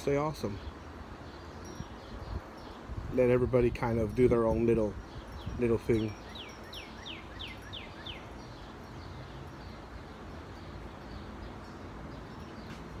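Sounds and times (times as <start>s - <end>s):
songbird whistling: 5.1s - 10.2s.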